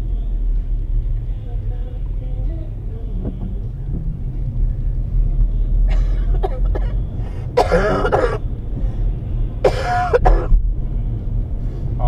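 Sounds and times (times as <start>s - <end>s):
low vehicle rumble: 0.0s - 12.0s
person coughing: 5.9s - 7.0s, 7.6s - 8.4s, 9.7s - 10.6s.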